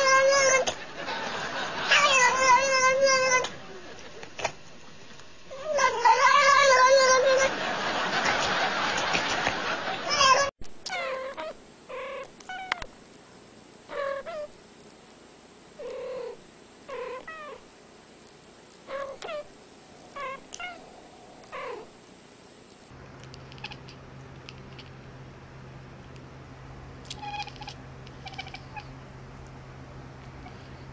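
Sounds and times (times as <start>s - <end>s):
cat making harsh noisy sound: 0.0s - 0.7s, 1.9s - 3.5s, 5.5s - 7.5s, 10.1s - 12.8s, 13.9s - 14.6s, 15.8s - 17.6s, 18.9s - 22.0s, 23.4s - 24.0s, 27.1s - 29.0s
cat yowling: 0.0s - 0.7s, 1.9s - 3.5s, 5.5s - 7.5s, 10.1s - 12.9s, 13.9s - 14.5s, 15.8s - 17.6s, 18.9s - 21.9s, 23.5s - 24.0s, 27.1s - 29.0s
cat meowing: 1.9s - 3.5s, 10.1s - 12.8s, 18.9s - 19.5s, 20.1s - 21.9s, 23.4s - 24.0s, 27.1s - 29.0s.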